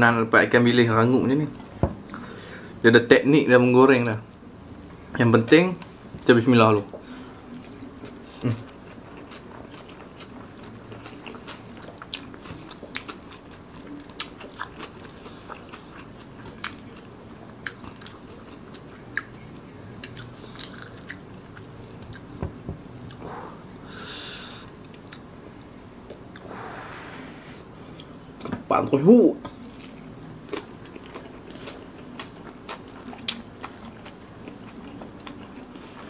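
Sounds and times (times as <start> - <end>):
chewing crispy food: 6.8 - 22.4, 29.5 - 36.0
breathy hiss: 23.2 - 24.7, 26.4 - 27.8.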